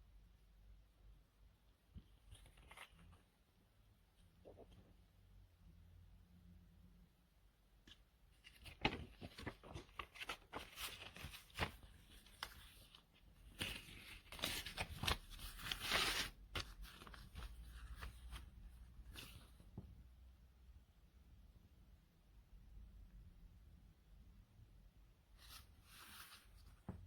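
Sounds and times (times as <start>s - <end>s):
crinkling rustles: 8.3s - 19.6s.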